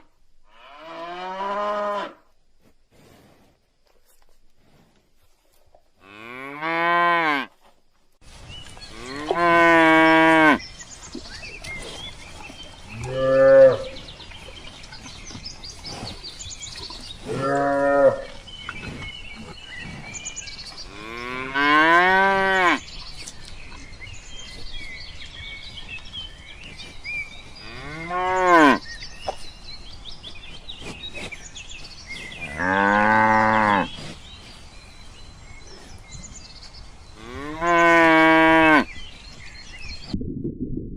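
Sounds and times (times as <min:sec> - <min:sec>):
cattle mooing: 0:17.3 - 0:18.4.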